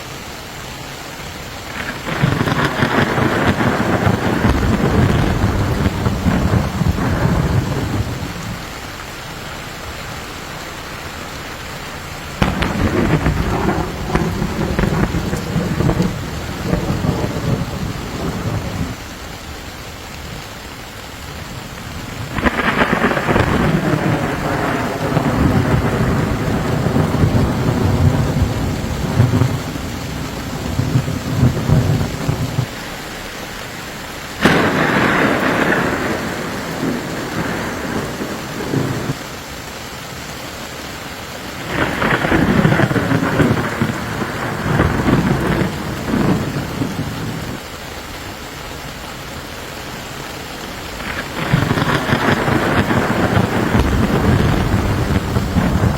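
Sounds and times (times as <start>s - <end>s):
steady rain: 0.0s - 55.9s
thunder rolling: 1.7s - 19.2s, 21.4s - 32.8s, 34.4s - 39.2s, 41.6s - 47.6s, 50.9s - 55.9s.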